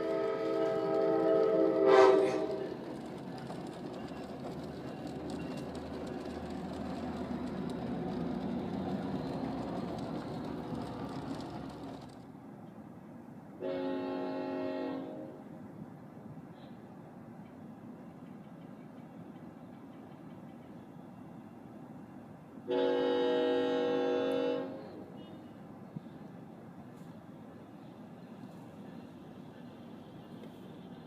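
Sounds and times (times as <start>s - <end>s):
locomotive air horn: 0.0s - 2.7s, 13.6s - 15.4s, 22.7s - 25.5s
passing train rumble: 0.0s - 31.0s.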